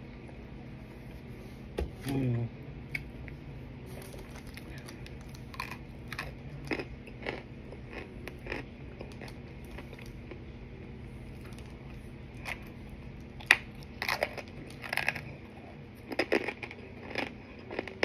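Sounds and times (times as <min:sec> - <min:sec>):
crisp crunching bites: 0:04.0 - 0:10.2.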